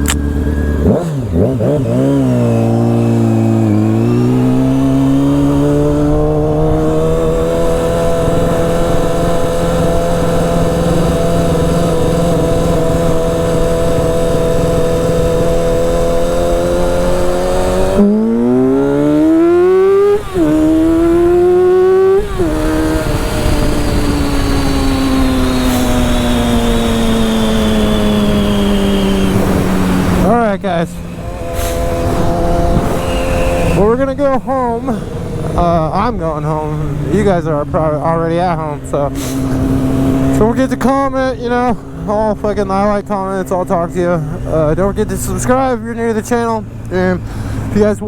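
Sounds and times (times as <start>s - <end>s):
motorcycle engine shifting gears: 0.0s - 48.0s.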